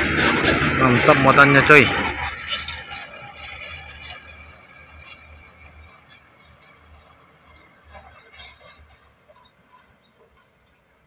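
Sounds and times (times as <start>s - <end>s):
dump truck engine driving off: 0.0s - 11.0s
bird chirping: 2.5s - 11.0s.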